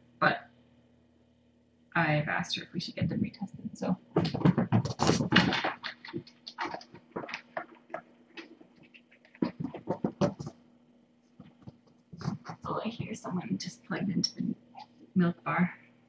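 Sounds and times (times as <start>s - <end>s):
faint steady hum: 0.0s - 16.0s
kittens scratching and rustling: 4.1s - 10.6s, 11.2s - 13.3s.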